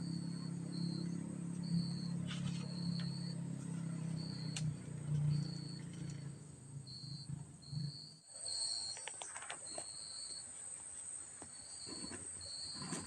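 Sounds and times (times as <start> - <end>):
steady low hum: 0.0 - 9.0
crickets chirping: 0.0 - 13.0.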